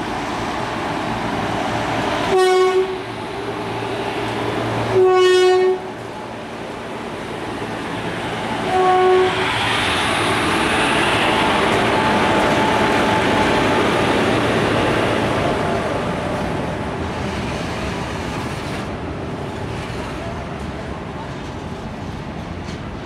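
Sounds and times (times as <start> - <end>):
locomotive horn: 2.3 - 3.0, 4.9 - 5.9, 8.6 - 9.4.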